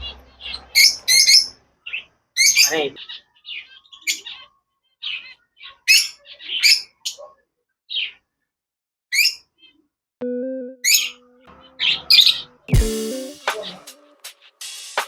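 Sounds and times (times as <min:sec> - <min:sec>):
caged birds chirping and squawking: 0:00.0 - 0:08.3, 0:09.1 - 0:09.9, 0:10.8 - 0:12.7.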